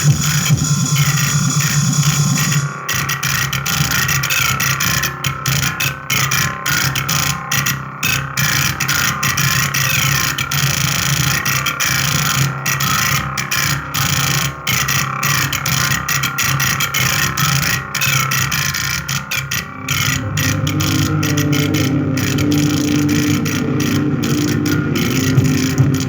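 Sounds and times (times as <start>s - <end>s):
harsh distorted electronic noise: 19.6s - 26.0s
steady low hum: 19.6s - 26.0s.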